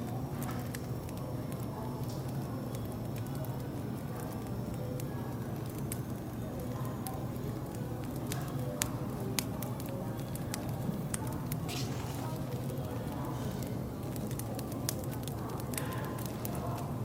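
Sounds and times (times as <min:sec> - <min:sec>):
low hum of cafe background: 0:00.0 - 0:17.0
wood fire crackling: 0:00.0 - 0:17.0
sharp pops of fire: 0:07.0 - 0:16.8.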